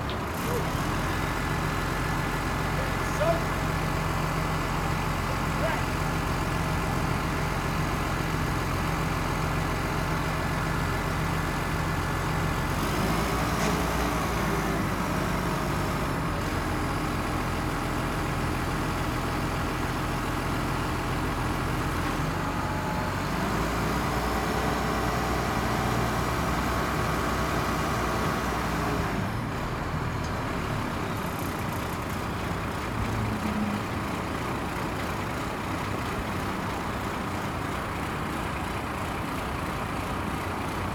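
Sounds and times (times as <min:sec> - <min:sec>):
truck engine revving: 0:12.6 - 0:16.7.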